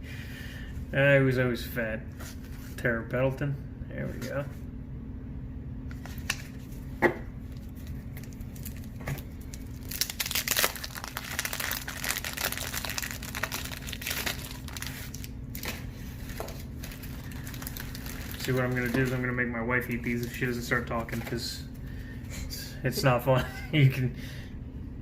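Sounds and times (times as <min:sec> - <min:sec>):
paper wrappers tearing and crinkling: 0:07.5 - 0:21.3.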